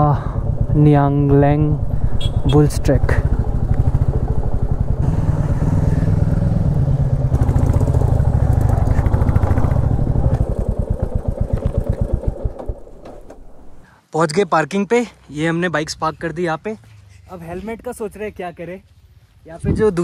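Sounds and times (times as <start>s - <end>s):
motorcycle engine thumping: 7.0s - 13.8s.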